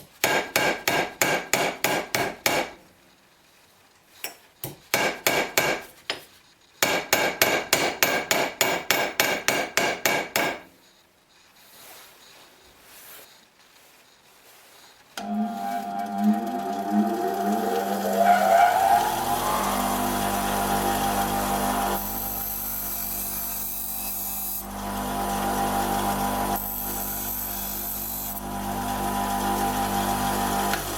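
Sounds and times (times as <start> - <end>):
hammer tapping on metal: 4.2 - 10.7.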